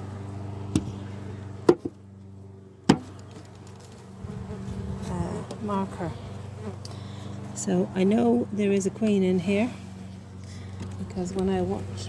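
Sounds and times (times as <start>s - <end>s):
honeybees humming: 0.0s - 12.0s
sharp knocks: 2.9s - 3.1s.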